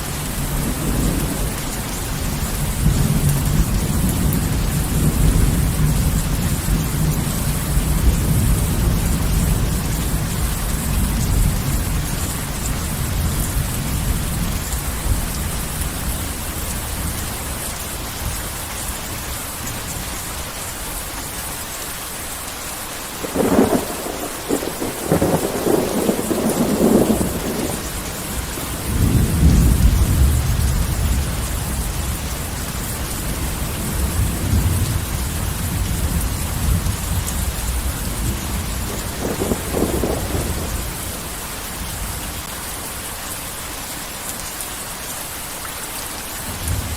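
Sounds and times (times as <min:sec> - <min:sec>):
heavy rain falling: 0:00.0 - 0:46.9
thunderclap and rumble: 0:00.4 - 0:17.2, 0:23.2 - 0:42.4.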